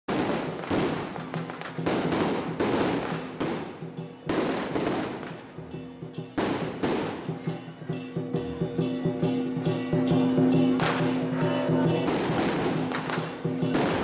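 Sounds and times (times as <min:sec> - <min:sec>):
firecrackers crackling: 0:00.1 - 0:07.7, 0:10.5 - 0:14.0
music playing: 0:00.6 - 0:14.0.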